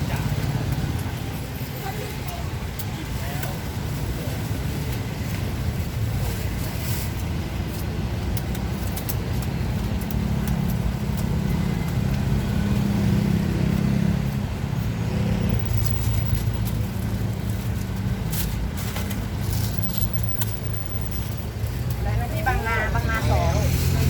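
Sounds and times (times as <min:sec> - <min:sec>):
vehicle engine humming: 0:07.3 - 0:24.0.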